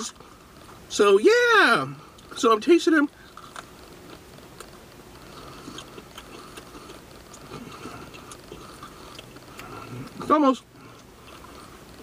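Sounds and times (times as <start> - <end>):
person chewing crispy chicken: 3.2 - 12.0
small mouth clicks: 5.4 - 10.2.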